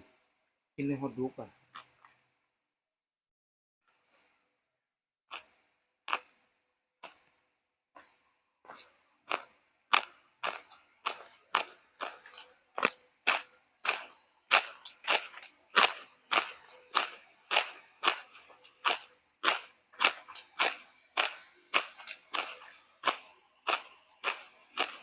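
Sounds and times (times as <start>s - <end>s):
chewing crunchy food: 1.7s - 2.2s, 5.3s - 6.4s, 7.0s - 7.4s, 8.0s - 25.0s.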